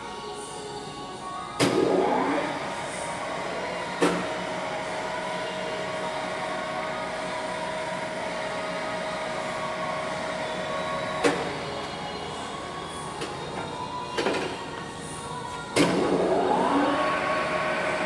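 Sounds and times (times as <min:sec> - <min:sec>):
steady machine whine: 0:00.0 - 0:18.0
lathe humming: 0:16.2 - 0:18.0.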